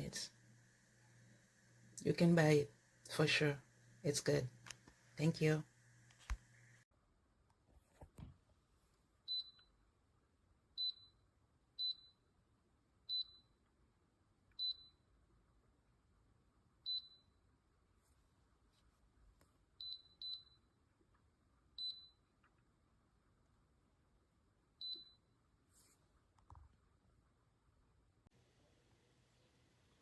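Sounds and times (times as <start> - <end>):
kettle control panel beeps: 24.8 - 25.2.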